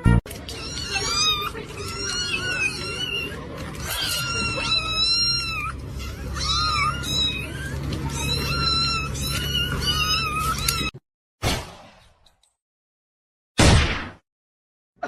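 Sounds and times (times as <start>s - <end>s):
cat meowing: 0.5s - 10.9s.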